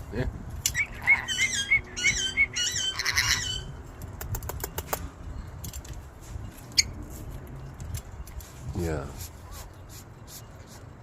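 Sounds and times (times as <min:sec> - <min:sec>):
parrots squawking: 0:00.7 - 0:03.8
sharp clicks: 0:04.0 - 0:06.0.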